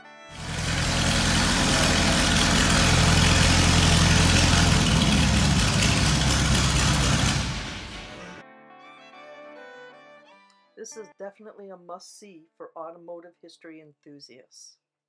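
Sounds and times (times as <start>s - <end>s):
engine running roughly: 0.4s - 8.4s.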